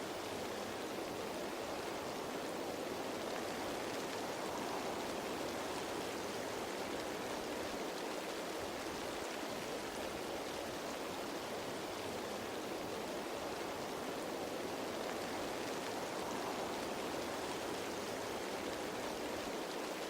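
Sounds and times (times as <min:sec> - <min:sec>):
rain falling on leaves: 0:00.0 - 0:20.0.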